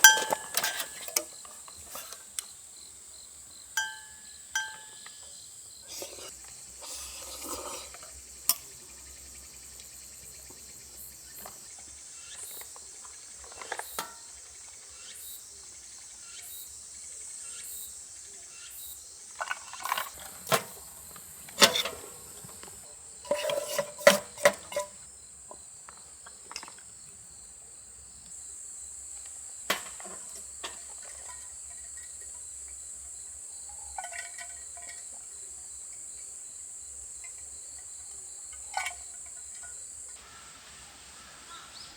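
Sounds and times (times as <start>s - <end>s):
clinks of things being handled: 0.0s - 2.6s, 3.8s - 9.1s, 12.4s - 14.5s, 19.4s - 27.0s, 29.2s - 36.3s, 37.1s - 40.2s
crickets chirring: 0.0s - 41.9s.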